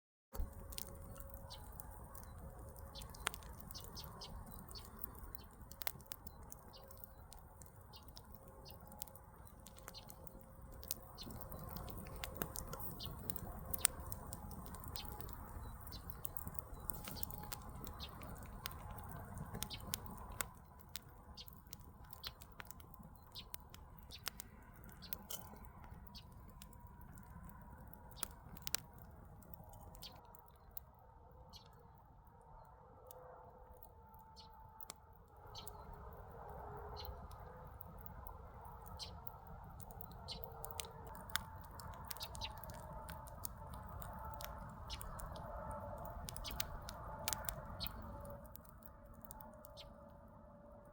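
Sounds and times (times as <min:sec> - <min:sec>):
rush of flames: 0:00.4 - 0:30.1
fire pops and snaps: 0:00.4 - 0:30.8, 0:34.4 - 0:49.9
campfire crackling: 0:00.4 - 0:50.9.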